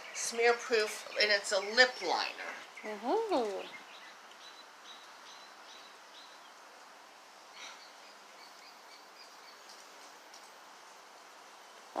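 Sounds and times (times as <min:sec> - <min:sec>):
low outdoor background noise: 0:00.0 - 0:12.0
faint bird chirps: 0:07.4 - 0:10.0.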